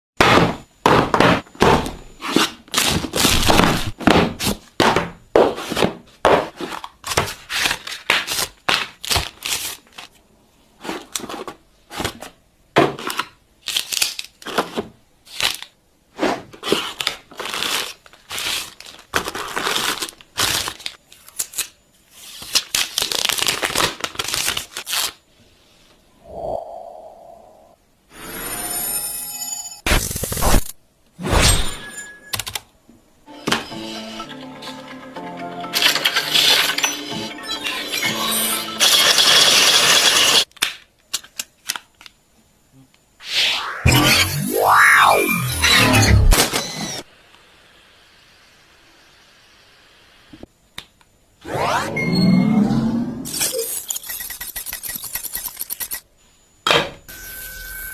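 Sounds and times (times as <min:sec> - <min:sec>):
packaging tearing and crinkling: 0:07.3 - 0:10.1, 0:13.1 - 0:14.6, 0:15.2 - 0:15.7, 0:16.6 - 0:25.2.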